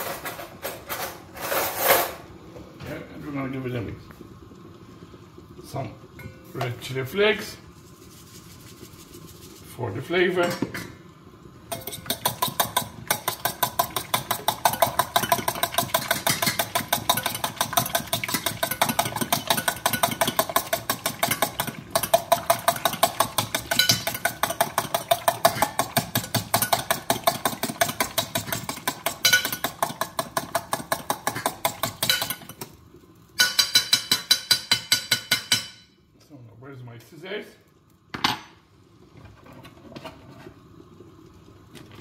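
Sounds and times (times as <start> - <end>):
fork beating eggs in a bowl: 11.7 - 32.8.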